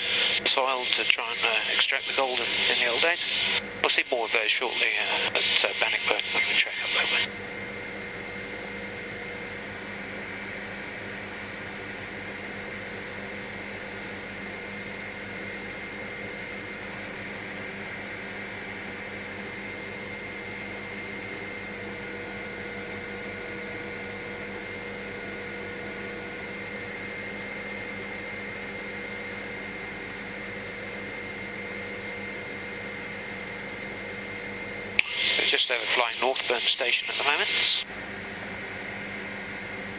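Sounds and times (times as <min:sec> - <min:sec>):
high whine: 0:00.0 - 0:07.4, 0:35.0 - 0:37.9
helicopter engine and rotor drone: 0:00.0 - 0:39.9.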